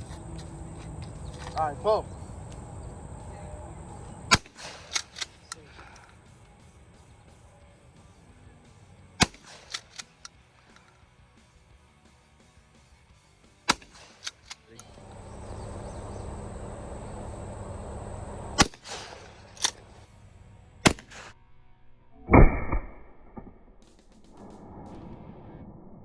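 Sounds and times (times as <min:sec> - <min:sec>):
sharp gunshots: 0:03.2 - 0:06.0, 0:09.2 - 0:10.2, 0:13.7 - 0:20.0, 0:20.8 - 0:21.4, 0:22.3 - 0:25.2
low loud blast: 0:14.8 - 0:20.0.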